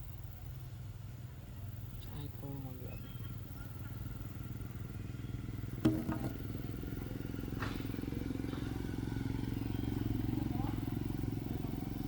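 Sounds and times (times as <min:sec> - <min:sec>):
small engine running: 0:04.2 - 0:12.0
sharp knocks: 0:05.8 - 0:06.5.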